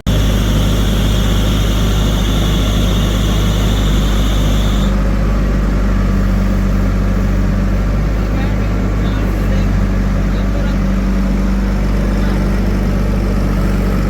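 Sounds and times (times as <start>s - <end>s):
thin high whine: 0.0s - 5.0s
diesel engine running: 0.0s - 14.0s.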